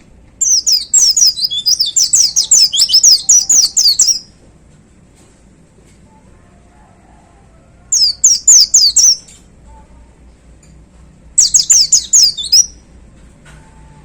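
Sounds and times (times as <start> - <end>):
bird singing high notes: 0.4 - 4.2, 11.4 - 12.8.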